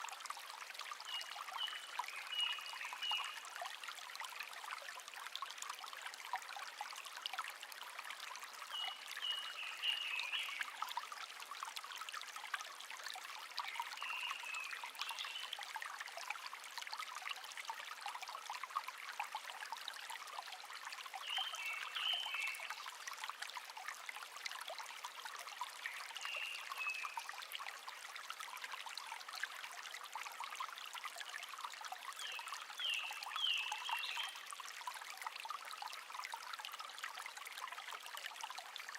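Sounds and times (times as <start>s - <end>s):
brook babbling: 0.0s - 38.9s
songbird chirping: 21.3s - 22.7s.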